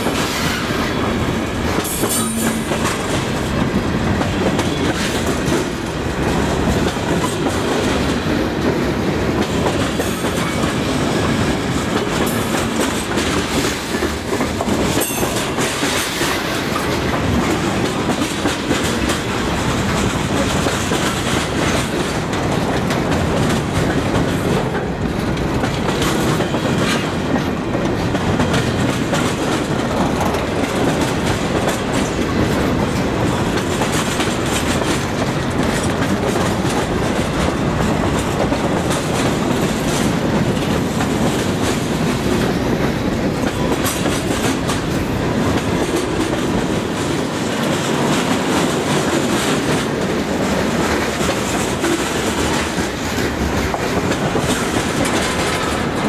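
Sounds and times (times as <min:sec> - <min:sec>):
train wheels rumbling on rail: 0:00.0 - 0:56.0
wheels clicking over rail joints: 0:00.1 - 0:56.0.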